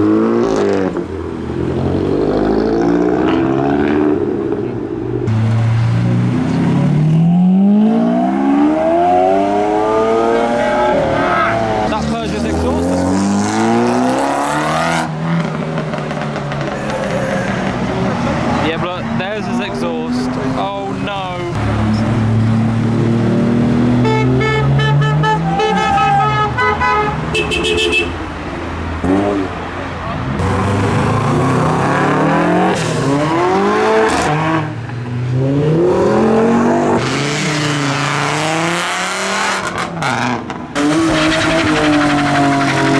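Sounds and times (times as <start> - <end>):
car engine accelerating: 0.0 - 26.4, 28.7 - 42.9
car horn short beeps: 24.0 - 28.2.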